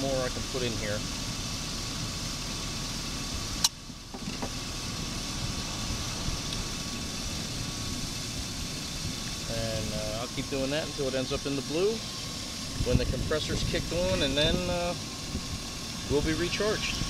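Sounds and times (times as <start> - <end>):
car engine idling: 0.0 - 17.0
sharp click: 3.6 - 3.8.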